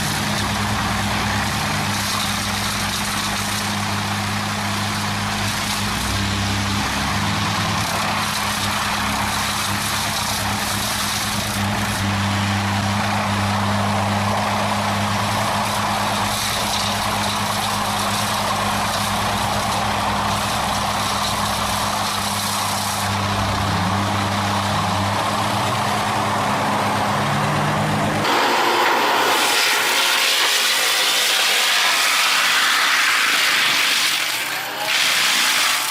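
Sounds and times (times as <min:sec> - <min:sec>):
broad mechanical noise: 0:00.0 - 0:35.9
heavy machine engine running: 0:00.0 - 0:35.9.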